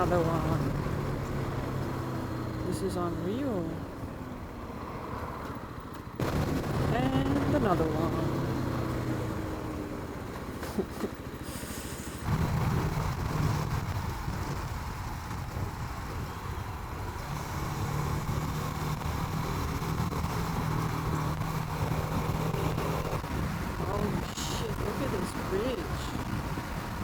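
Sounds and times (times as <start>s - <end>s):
motorcycle engine running: 6.2s - 11.4s, 12.2s - 16.4s
wind noise: 12.2s - 27.0s.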